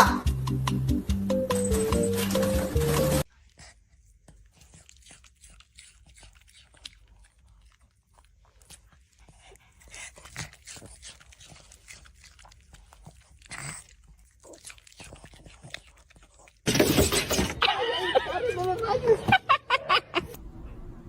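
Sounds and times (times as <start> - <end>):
faint chewing and crunching: 1.6 - 16.7.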